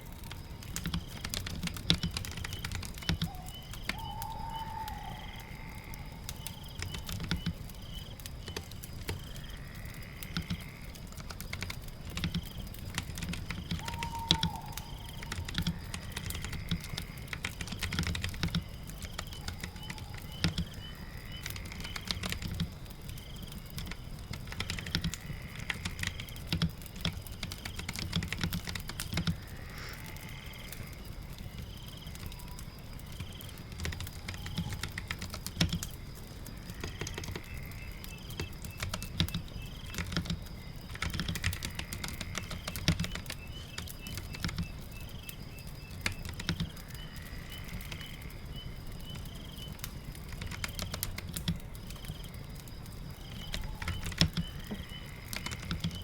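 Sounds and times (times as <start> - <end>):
faint chirps: 0.0 - 11.0, 51.8 - 56.0
fire crackling: 0.0 - 56.0
rain: 0.0 - 56.0
typing on computer keyboard: 0.3 - 5.0, 6.3 - 7.6, 11.2 - 22.7, 23.8 - 29.4, 33.2 - 36.0, 38.3 - 44.8, 46.0 - 46.8, 50.1 - 52.2, 53.3 - 56.0.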